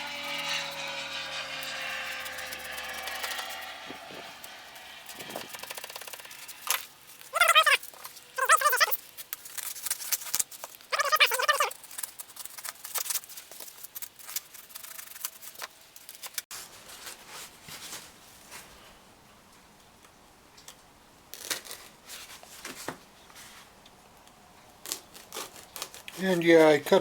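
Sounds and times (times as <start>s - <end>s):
plastic squeaking under blade: 5.1s - 15.7s.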